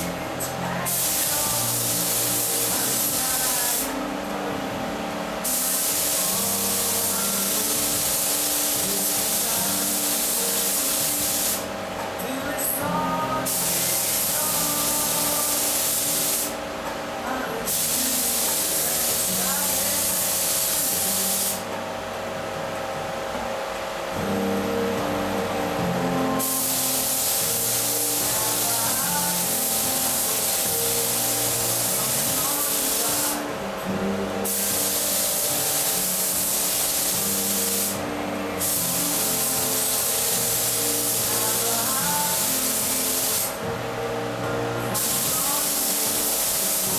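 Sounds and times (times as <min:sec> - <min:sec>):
spray gun hissing: 0:00.0 - 0:04.0, 0:05.4 - 0:11.7, 0:12.9 - 0:16.6, 0:17.6 - 0:21.7, 0:26.3 - 0:43.7, 0:44.9 - 0:46.9
steady low hum: 0:00.0 - 0:46.9.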